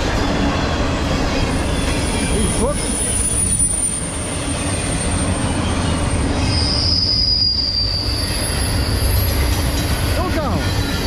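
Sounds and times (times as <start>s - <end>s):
train wheels rumbling on rail: 0.0s - 11.0s
high-pitched wheel squeal: 1.6s - 9.9s
lower wheel squeal falling in pitch: 6.2s - 9.5s.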